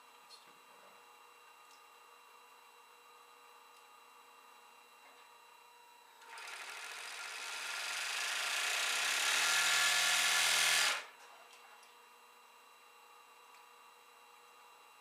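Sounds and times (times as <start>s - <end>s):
overlock sewing machine running: 6.2s - 11.1s.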